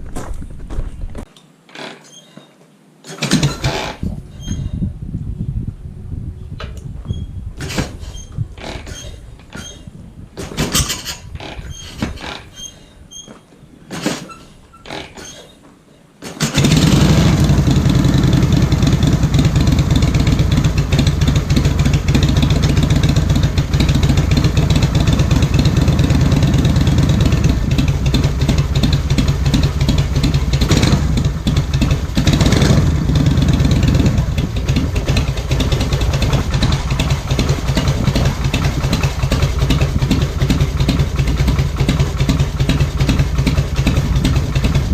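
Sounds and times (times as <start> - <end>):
motorcycle engine starting and idling: 3.0 - 4.1, 16.2 - 44.9.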